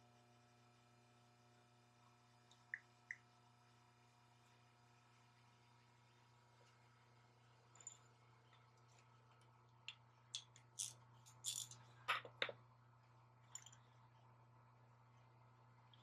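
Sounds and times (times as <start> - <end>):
steady low hum: 0.0 - 16.0
faint clicks and knocks of handling: 7.6 - 14.3.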